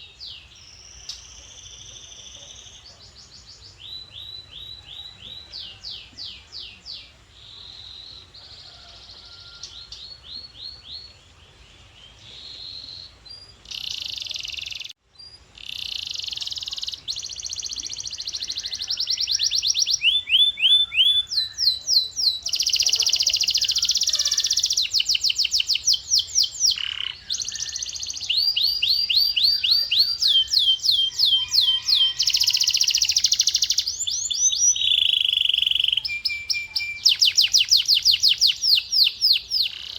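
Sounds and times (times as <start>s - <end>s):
canary singing trills: 12.1s - 39.9s.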